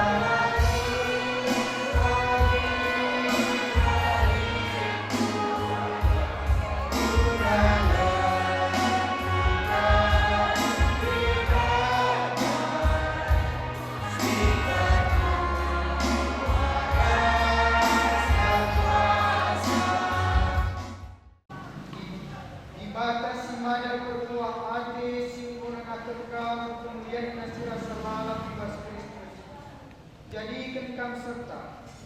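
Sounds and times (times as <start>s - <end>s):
group singing a hymn: 0.0s - 21.0s
amplified accompaniment with bass: 0.0s - 21.1s.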